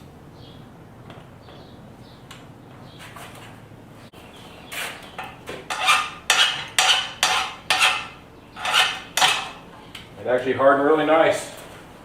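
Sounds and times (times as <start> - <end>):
file scraping on steel: 5.7 - 9.6.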